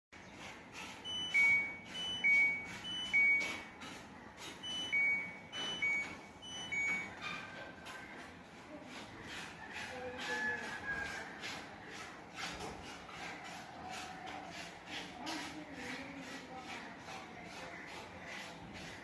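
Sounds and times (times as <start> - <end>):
washing machine two-tone beeps: 1.0 - 3.8, 4.4 - 7.7.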